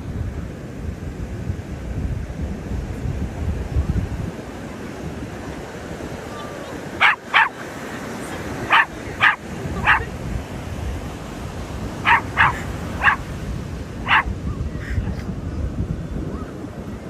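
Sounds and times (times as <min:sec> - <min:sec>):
sea lion barking: 0:06.7 - 0:10.2, 0:12.0 - 0:13.3, 0:14.0 - 0:14.4.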